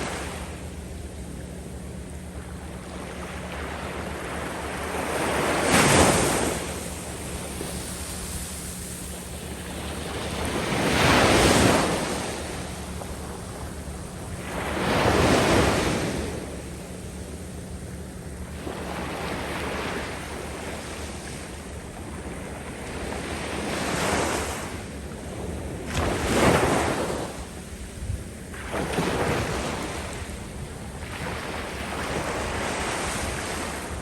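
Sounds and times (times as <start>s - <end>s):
waves washing on sandy beach: 0.0s - 1.0s, 2.3s - 34.0s.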